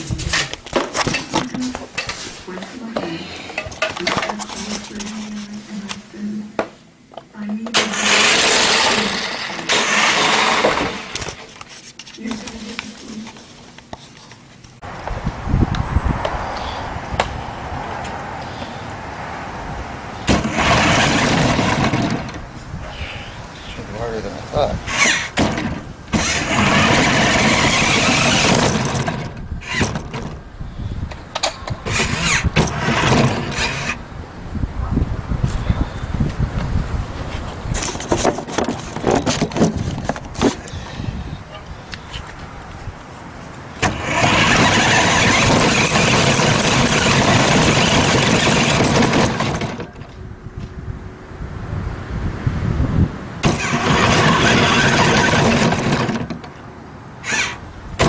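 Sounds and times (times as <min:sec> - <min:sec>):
radio-controlled truck running: 0:07.8 - 0:11.3, 0:26.1 - 0:30.1, 0:31.8 - 0:34.0, 0:43.8 - 0:49.9, 0:53.4 - 0:56.4, 0:57.2 - 0:57.6.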